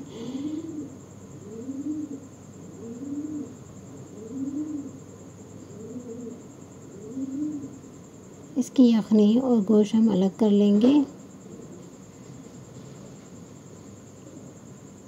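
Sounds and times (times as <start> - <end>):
bird cooing: 0.0 - 7.8, 11.4 - 12.0.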